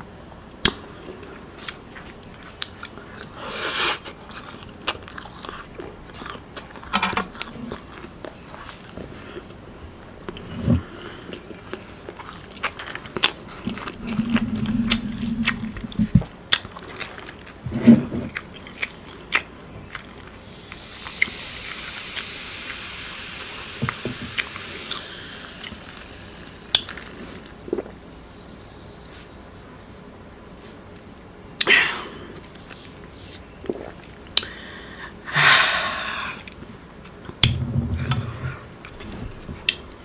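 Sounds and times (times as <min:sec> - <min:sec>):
chewing with wet mouth clicks: 0:11.3 - 0:17.6
low hum: 0:13.1 - 0:16.5
soda pouring over ice and fizzing: 0:20.3 - 0:27.8.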